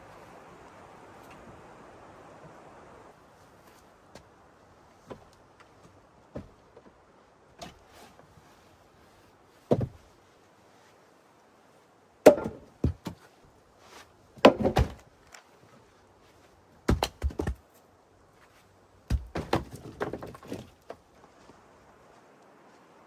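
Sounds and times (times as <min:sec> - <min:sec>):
sharp knocks and thunks: 0:09.7 - 0:10.0, 0:12.2 - 0:13.2, 0:14.4 - 0:15.0, 0:16.9 - 0:17.6, 0:19.1 - 0:20.7.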